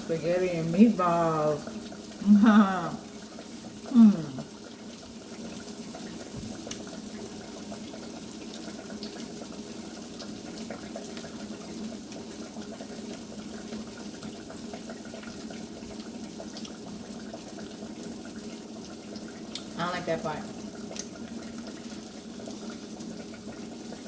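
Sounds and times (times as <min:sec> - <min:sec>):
hot oil sizzling in a frying pan: 0:00.0 - 0:24.0
small crackles and pops: 0:06.2 - 0:07.1, 0:08.4 - 0:09.5, 0:10.1 - 0:18.1, 0:19.1 - 0:19.8, 0:20.7 - 0:22.8.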